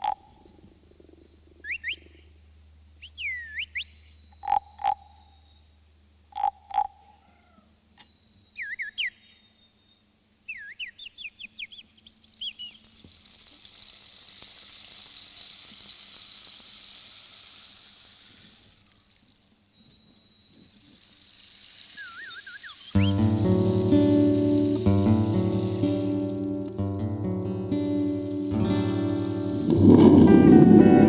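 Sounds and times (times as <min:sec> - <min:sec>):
warbling bird chirps: 0:10.5 - 0:13.0, 0:21.8 - 0:26.5
high hiss: 0:13.2 - 0:19.4, 0:20.6 - 0:31.0.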